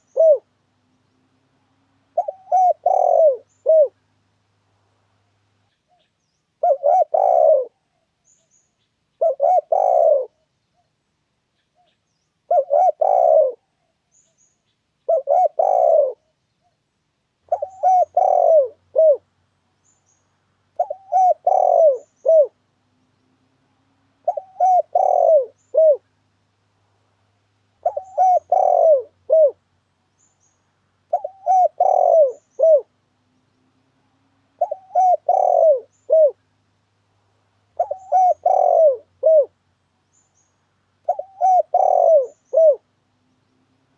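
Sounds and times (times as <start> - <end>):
dove cooing: 0.0 - 0.6, 1.7 - 4.0, 6.6 - 8.0, 9.2 - 10.5, 12.5 - 13.9, 15.0 - 16.3, 17.4 - 19.3, 20.7 - 22.6, 24.1 - 26.1, 27.8 - 29.6, 31.0 - 33.0, 34.1 - 36.5, 37.7 - 39.6, 41.0 - 43.0.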